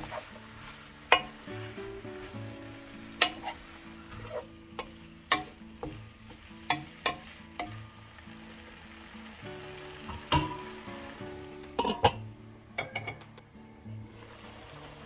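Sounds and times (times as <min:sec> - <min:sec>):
food sizzling in a pan: 0:00.0 - 0:12.8, 0:14.0 - 0:15.0
utensil scraping and knocking pan: 0:01.1 - 0:01.5, 0:03.2 - 0:07.4.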